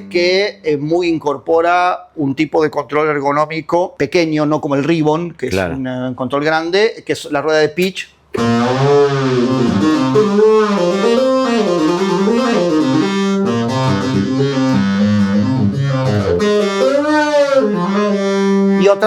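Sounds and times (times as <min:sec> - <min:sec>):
synthesizer stepped notes: 0:08.4 - 0:16.9
synthesizer pitch bends: 0:08.4 - 0:18.8.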